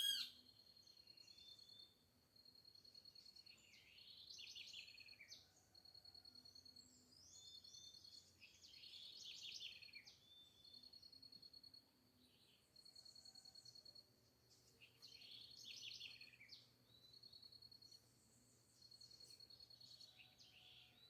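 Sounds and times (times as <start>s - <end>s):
bird warbling song: 0.0s - 0.3s.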